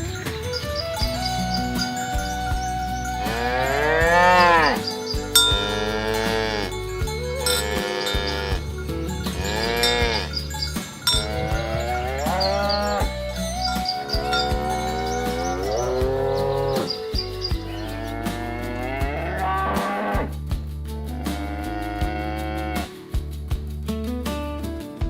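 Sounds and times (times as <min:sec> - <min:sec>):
cattle mooing: 0:03.2 - 0:06.8, 0:07.4 - 0:08.6, 0:09.3 - 0:10.4, 0:11.1 - 0:13.1, 0:17.8 - 0:20.3.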